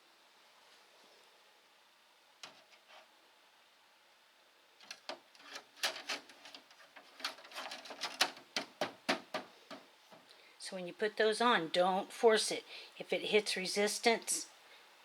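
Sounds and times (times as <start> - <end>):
plastic clicks and scrapes: 2.4 - 3.1, 4.8 - 10.2.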